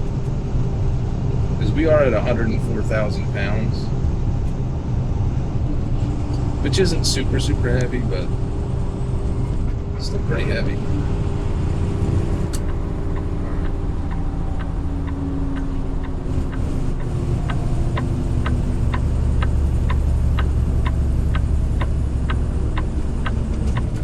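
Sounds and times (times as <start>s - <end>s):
diesel engine drone: 0.0s - 24.0s
road noise: 0.0s - 24.0s.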